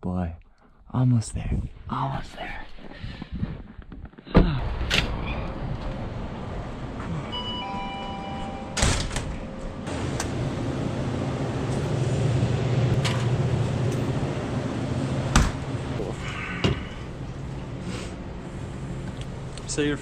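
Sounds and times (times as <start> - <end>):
car door thumping: 15.3 - 15.7.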